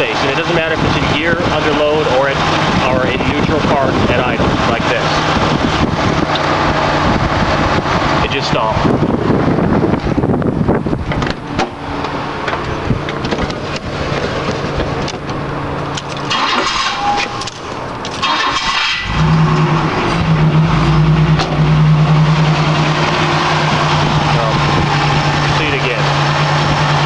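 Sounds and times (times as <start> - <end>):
car engine stumbling and coughing: 11.0 - 27.0.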